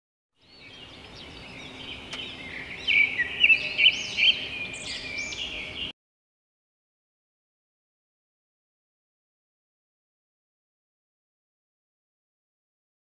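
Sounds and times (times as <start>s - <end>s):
birds chirping and twittering: 0.4s - 5.9s.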